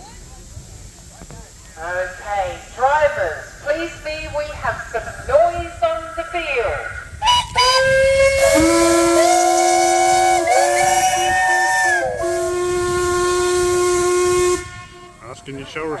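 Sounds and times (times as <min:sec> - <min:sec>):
steam hissing: 0:00.0 - 0:16.0
steam whistles blowing: 0:06.0 - 0:16.0.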